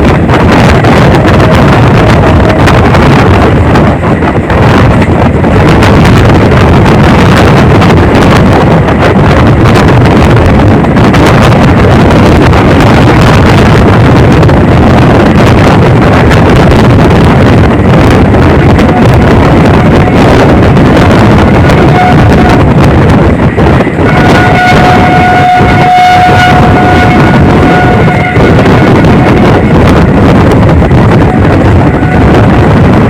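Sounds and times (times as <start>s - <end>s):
train rumble: 0.0s - 33.0s
wind on microphone: 0.0s - 33.0s.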